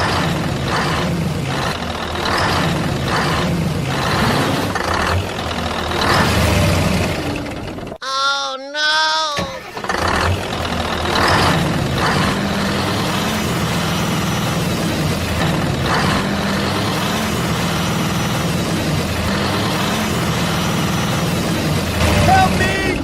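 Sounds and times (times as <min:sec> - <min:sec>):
truck engine idling: 0:00.0 - 0:08.0, 0:09.2 - 0:23.0.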